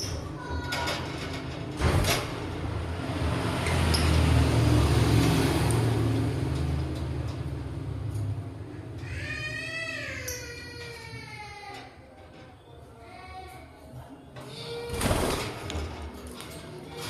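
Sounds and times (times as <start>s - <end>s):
road vehicle passing: 2.3s - 9.0s.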